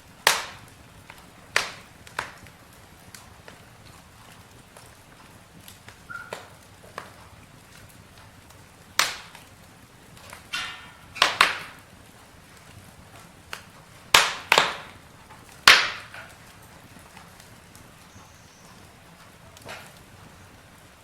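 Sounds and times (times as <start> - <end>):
campfire crackling: 0.0 - 21.0
sharp wood pops: 0.2 - 11.9, 12.6 - 18.0, 18.6 - 20.1
whistling hiss: 6.1 - 6.6, 18.0 - 19.0.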